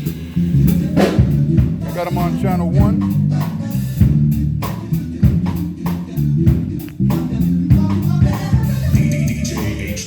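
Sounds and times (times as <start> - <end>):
bass guitar line: 0.0 - 10.0
drum kit steady beat: 0.0 - 10.0
guitar: 0.0 - 10.0.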